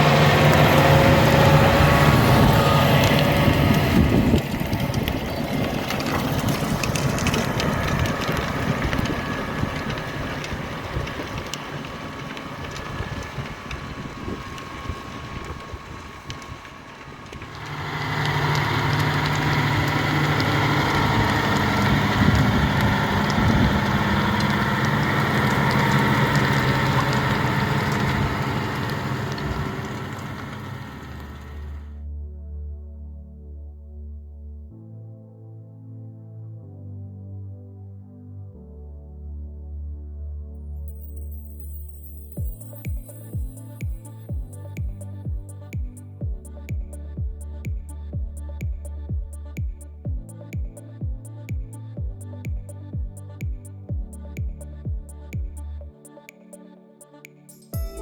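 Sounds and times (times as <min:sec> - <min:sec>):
tractor diesel engine under load: 0:00.0 - 0:32.0.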